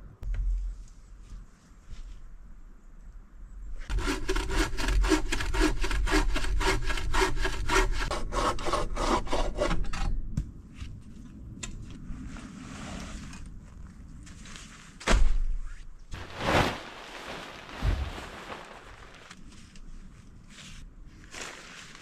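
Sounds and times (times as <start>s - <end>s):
hand saw cutting wood: 3.9s - 9.9s
rustling: 16.1s - 22.0s.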